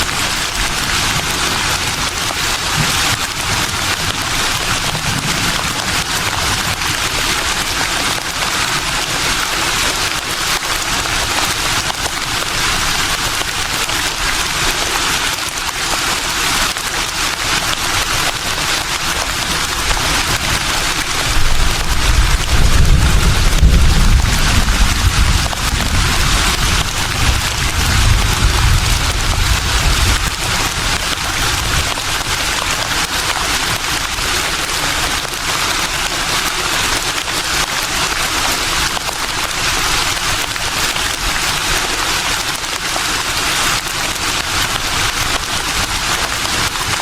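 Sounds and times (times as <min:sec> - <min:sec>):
low wind rumble: 0:21.1 - 0:31.9.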